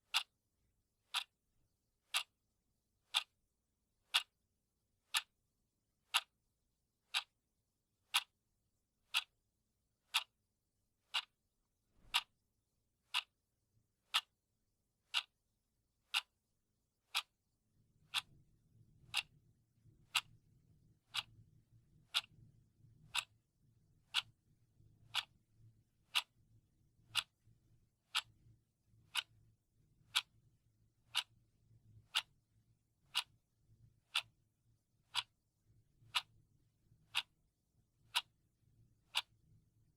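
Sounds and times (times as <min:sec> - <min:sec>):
clock ticking: 0:00.0 - 0:00.3, 0:01.1 - 0:01.4, 0:02.1 - 0:02.3, 0:03.1 - 0:03.4, 0:04.1 - 0:04.4, 0:05.1 - 0:05.3, 0:06.1 - 0:06.3, 0:07.1 - 0:07.4, 0:08.1 - 0:08.4, 0:09.1 - 0:09.4, 0:10.1 - 0:10.3, 0:11.1 - 0:11.4, 0:12.0 - 0:12.3, 0:13.1 - 0:13.3, 0:14.1 - 0:14.3, 0:15.1 - 0:15.3, 0:16.1 - 0:16.4, 0:17.1 - 0:17.4, 0:18.1 - 0:18.4, 0:19.1 - 0:19.4, 0:20.1 - 0:20.3, 0:21.1 - 0:21.4, 0:22.1 - 0:22.4, 0:23.1 - 0:23.4, 0:24.1 - 0:24.4, 0:25.1 - 0:25.3, 0:26.1 - 0:26.4, 0:27.1 - 0:27.4, 0:28.0 - 0:28.4, 0:29.1 - 0:29.4, 0:30.1 - 0:30.4, 0:31.1 - 0:31.3, 0:32.0 - 0:32.4, 0:33.1 - 0:33.4, 0:34.0 - 0:34.4, 0:35.0 - 0:35.4, 0:36.0 - 0:36.4, 0:37.1 - 0:37.4, 0:38.0 - 0:38.4, 0:39.1 - 0:39.4.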